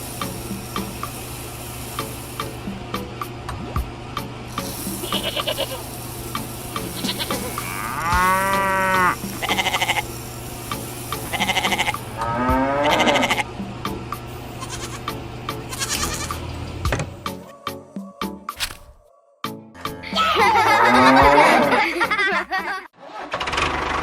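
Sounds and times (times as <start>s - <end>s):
short buzzy bursts: 0.0s - 2.9s, 4.5s - 13.5s
steady low hum: 0.0s - 19.0s
animal bleating: 4.9s - 5.9s, 6.8s - 10.1s, 11.3s - 13.5s, 14.6s - 16.4s.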